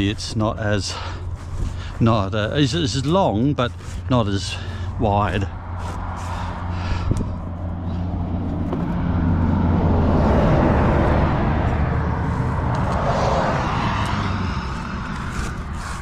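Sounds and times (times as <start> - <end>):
low engine hum: 0.0 - 16.0
vehicle passing on highway: 3.8 - 16.0.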